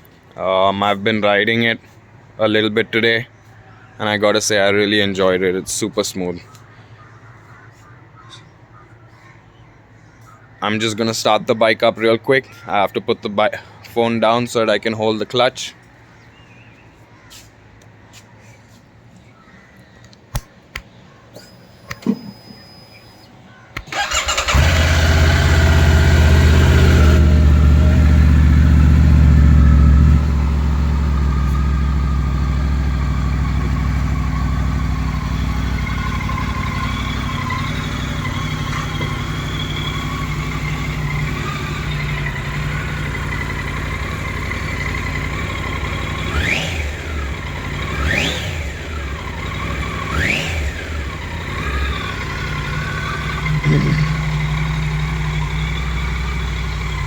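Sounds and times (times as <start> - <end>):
engine throttle blips: 21.4 - 57.0
motorcycle engine idling: 23.8 - 57.0
motorcycle engine starting: 23.8 - 57.0.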